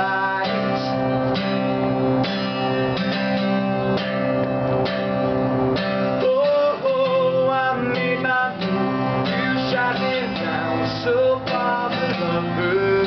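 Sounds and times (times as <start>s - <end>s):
person singing: 0.0s - 1.2s, 6.1s - 13.0s
acoustic guitar strumming: 0.0s - 13.0s.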